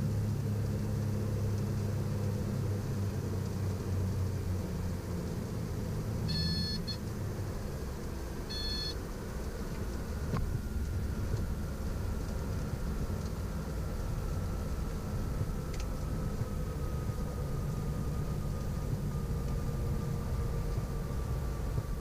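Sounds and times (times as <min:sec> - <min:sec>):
aircraft cabin engine drone: 0:00.0 - 0:22.0
short electronic beeps: 0:06.3 - 0:07.0, 0:08.5 - 0:09.0.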